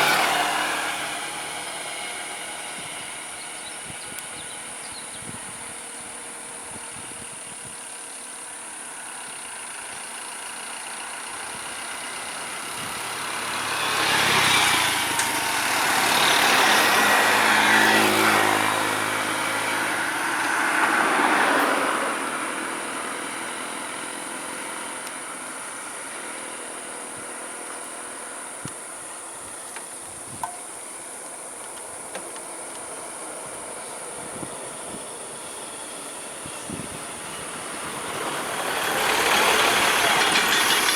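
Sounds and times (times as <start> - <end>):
vehicle engine passing by: 0.0 - 6.1, 9.6 - 26.9
steady high-pitched hiss: 0.0 - 40.9.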